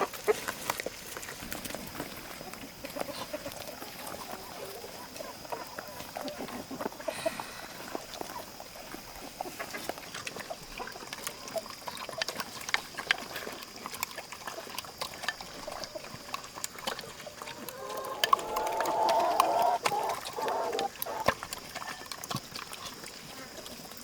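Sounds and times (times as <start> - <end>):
chicken clucking: 2.4 - 12.3, 16.5 - 22.1.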